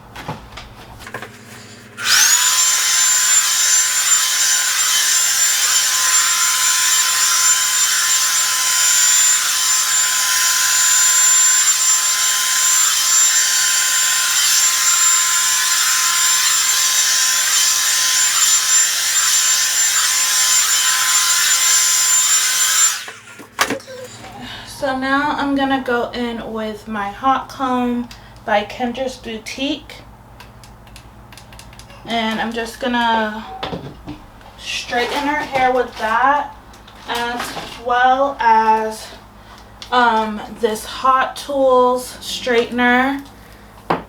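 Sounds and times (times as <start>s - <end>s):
blow dryer running: 0.0s - 25.9s.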